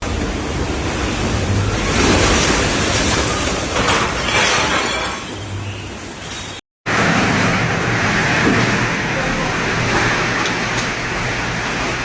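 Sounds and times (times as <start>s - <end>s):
tornado wind rushing: 6.9s - 12.0s.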